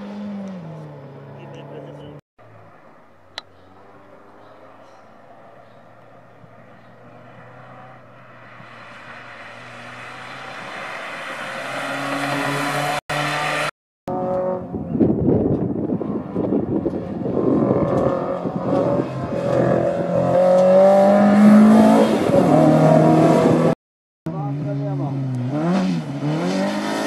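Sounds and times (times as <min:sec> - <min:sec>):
car engine accelerating past: 0:00.0 - 0:14.8, 0:16.0 - 0:23.8
car engine revving hard: 0:06.4 - 0:14.7, 0:17.0 - 0:23.8, 0:24.6 - 0:27.0.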